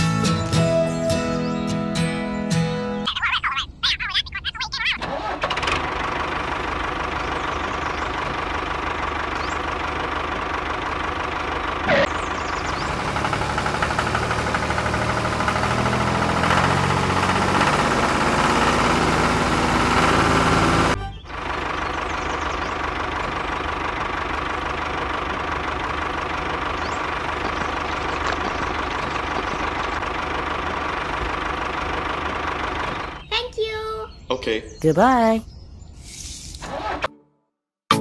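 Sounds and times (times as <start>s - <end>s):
small engine running: 5.0s - 33.3s.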